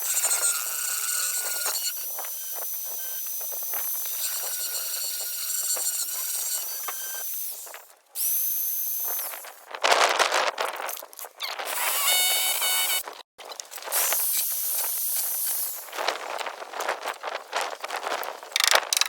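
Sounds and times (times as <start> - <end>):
power tool whining: 0.0 - 9.6, 11.6 - 13.2.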